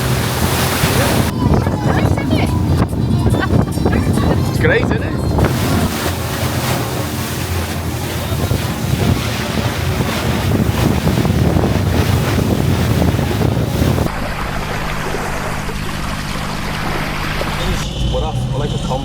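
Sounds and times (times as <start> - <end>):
wind buffeting microphone: 0.0 - 14.2
low engine hum: 0.0 - 19.0
motorboat engine: 0.0 - 19.0
rushing water: 0.0 - 19.0.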